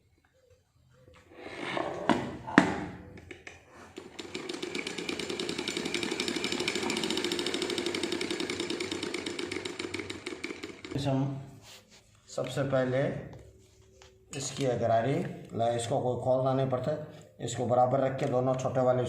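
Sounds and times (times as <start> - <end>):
sewing machine clattering: 3.9 - 11.0.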